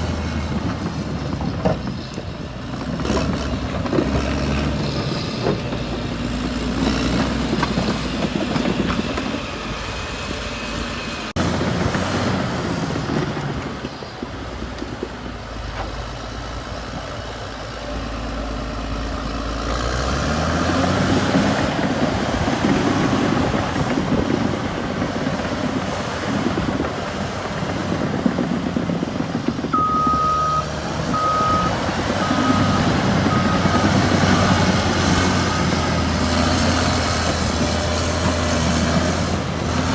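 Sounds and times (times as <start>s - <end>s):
bulldozer diesel engine running: 0.0s - 39.9s
reversing alarm beeping: 29.7s - 35.9s.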